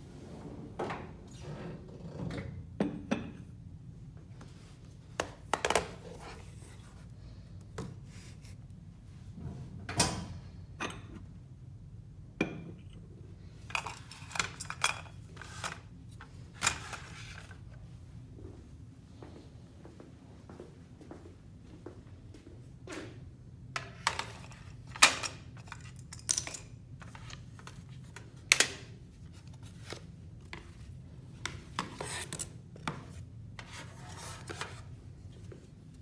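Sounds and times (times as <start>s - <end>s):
objects knocking and clinking: 25.1s - 26.7s.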